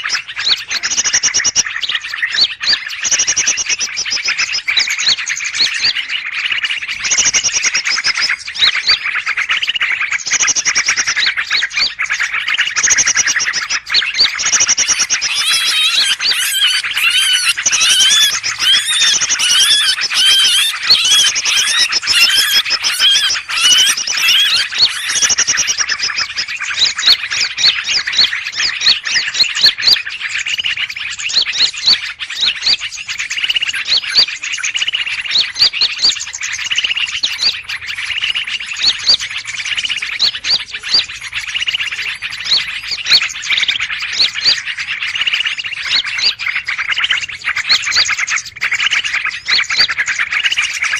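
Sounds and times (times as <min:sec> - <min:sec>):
many small birds calling: 0:00.0 - 0:50.9.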